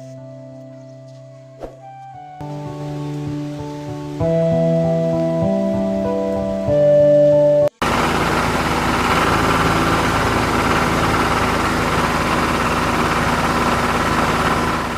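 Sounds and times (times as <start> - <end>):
small electric motor humming: 7.8 - 14.9.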